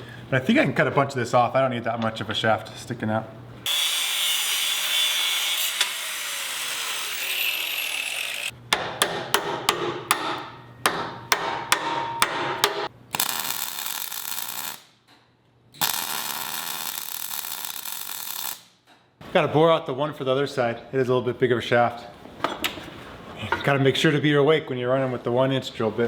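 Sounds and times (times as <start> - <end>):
power tool running on metal: 3.7 - 8.5.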